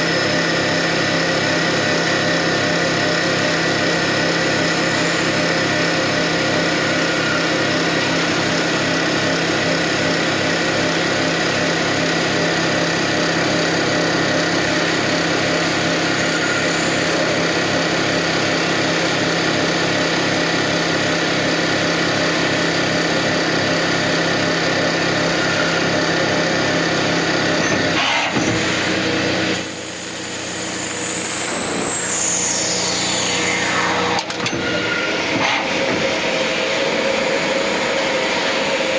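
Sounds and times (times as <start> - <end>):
lathe machine hum with pulse: 0.0 - 38.9
high whine falling in pitch: 30.4 - 36.8.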